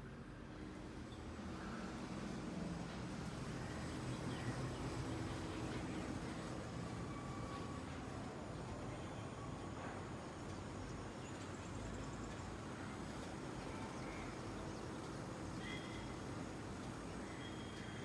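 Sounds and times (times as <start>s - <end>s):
outdoor background noise: 0.0s - 18.0s
faint distant bird chirps: 13.6s - 18.0s.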